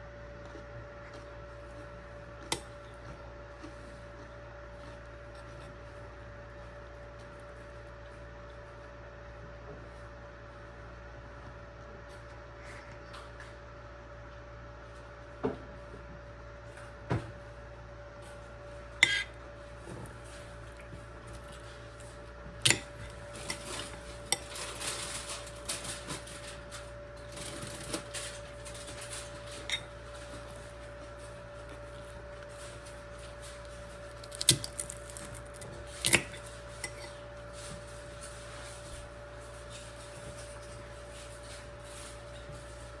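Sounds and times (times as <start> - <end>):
faint steady hum: 0.0 - 43.0
utensils clinking against dishes: 19.0 - 19.3, 22.6 - 30.8, 34.3 - 38.4
scraping and rattling: 19.0 - 43.0.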